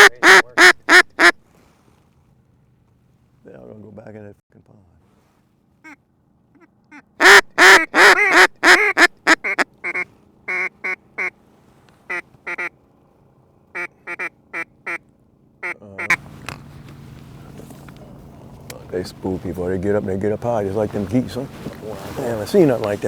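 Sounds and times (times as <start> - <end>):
duck call quacks: 0.0 - 1.4, 5.8 - 11.3, 12.1 - 12.7, 13.8 - 15.0, 15.6 - 16.2.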